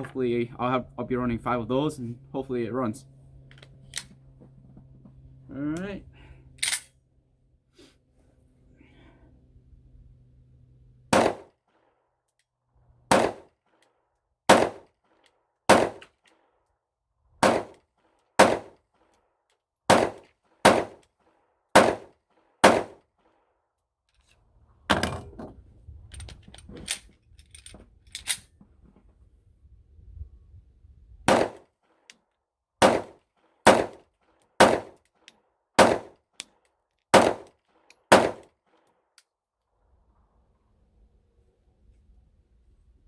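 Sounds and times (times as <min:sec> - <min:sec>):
light metal clicks and clanks: 0:06.6 - 0:06.9, 0:24.9 - 0:28.6
pistol shots: 0:11.1 - 0:11.5, 0:13.1 - 0:13.5, 0:14.5 - 0:14.9, 0:15.7 - 0:16.1, 0:17.4 - 0:17.8, 0:18.4 - 0:18.7, 0:19.9 - 0:21.0, 0:21.8 - 0:23.0, 0:31.3 - 0:31.6, 0:32.8 - 0:34.0, 0:34.6 - 0:35.0, 0:35.8 - 0:36.2, 0:37.1 - 0:37.5, 0:38.1 - 0:38.5.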